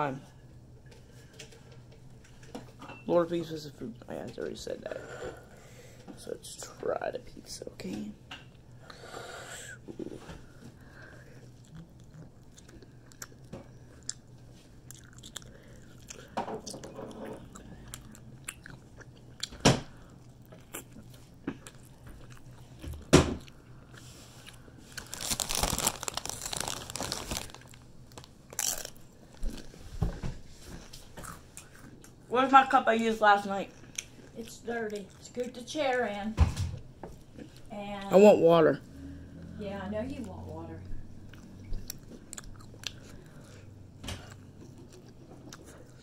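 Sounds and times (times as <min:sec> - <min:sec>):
person chewing food: 0:10.1 - 0:32.3, 0:33.7 - 0:35.6, 0:40.8 - 0:46.0.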